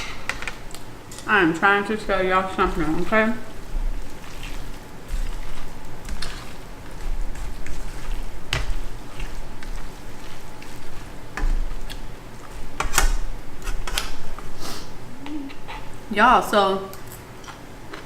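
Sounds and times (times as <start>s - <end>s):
chewing and wet mouth sounds: 2.6s - 12.7s.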